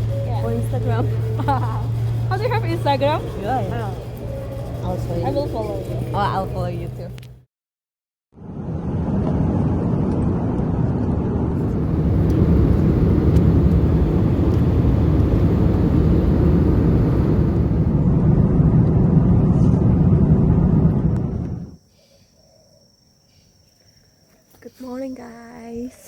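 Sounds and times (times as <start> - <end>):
vehicle rumbling in motion: 0.0 - 7.5, 8.4 - 21.8.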